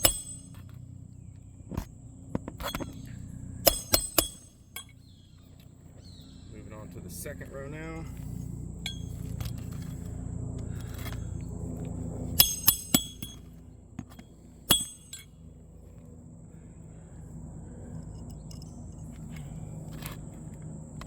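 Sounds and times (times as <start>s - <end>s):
hatchet striking roofing nails: 0.0s - 0.7s, 2.4s - 5.0s, 12.4s - 15.2s.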